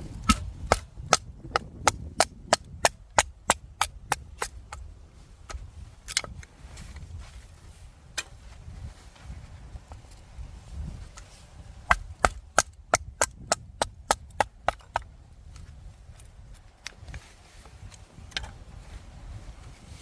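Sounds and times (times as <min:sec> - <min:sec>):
blade chopping wood: 0:00.0 - 0:04.8, 0:11.9 - 0:15.1.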